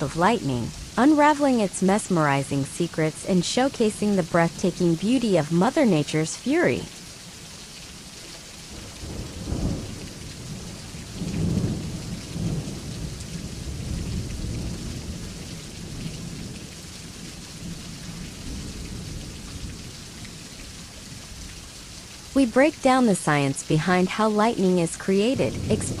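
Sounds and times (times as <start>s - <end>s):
steady rain: 0.0s - 26.0s
thunder rumbling: 8.7s - 16.7s, 24.8s - 26.0s.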